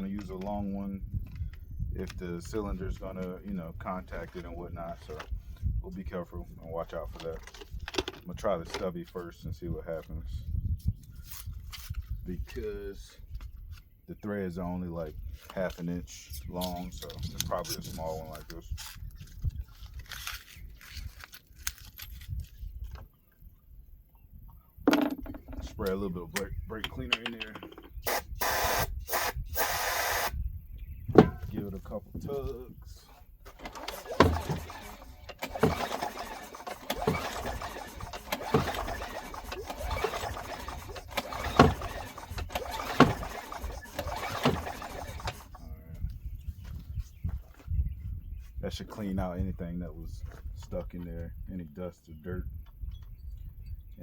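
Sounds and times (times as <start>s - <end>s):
hands handling small parts: 18.4s - 23.1s
recoil starter rope pulls: 27.0s - 30.4s, 33.2s - 45.7s
small engine turning over: 27.6s - 30.4s, 33.5s - 45.7s.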